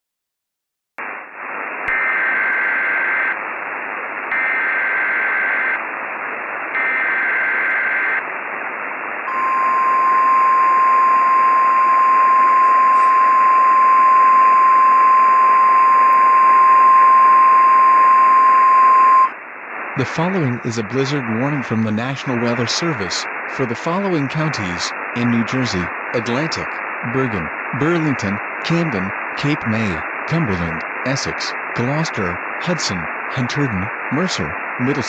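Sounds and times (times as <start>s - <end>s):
radio static hiss: 1.0s - 35.0s
steady warning alarm tone: 9.3s - 19.3s
warbling data tones: 9.3s - 19.4s.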